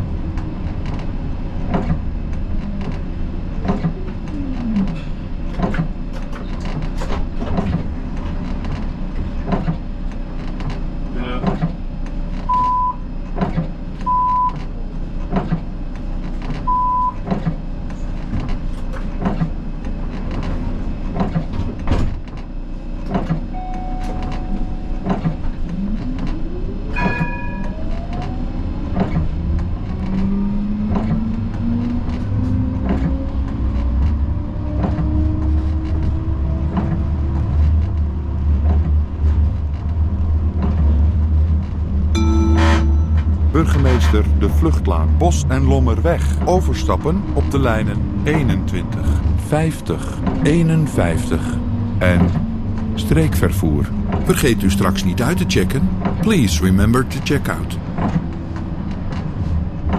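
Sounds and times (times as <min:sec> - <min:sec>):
tram motors whining: 0:00.0 - 0:59.9
wheels rumbling on rails: 0:00.0 - 0:59.9
short beeps: 0:12.5 - 0:13.0, 0:14.1 - 0:14.6, 0:16.7 - 0:17.2, 0:23.5 - 0:25.1, 0:42.2 - 0:44.2.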